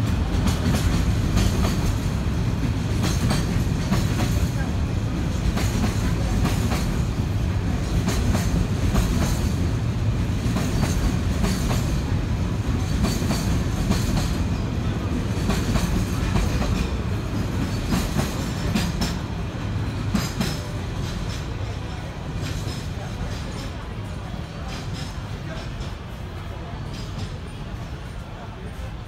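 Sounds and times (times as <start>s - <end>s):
wheels clacking over rail joints: 0.0s - 24.0s
freight train rumbling past: 0.0s - 29.0s.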